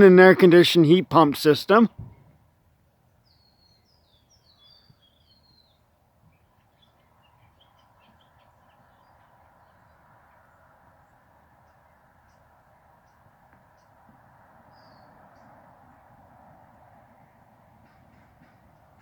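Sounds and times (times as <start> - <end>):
faint bird chirping: 3.0 - 14.0, 14.7 - 15.6.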